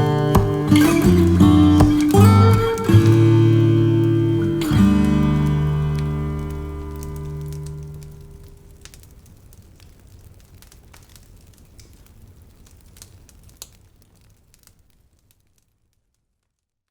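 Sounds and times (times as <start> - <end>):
sharp pops: 0.0 - 8.6
charcoal fire crackling: 0.0 - 16.6.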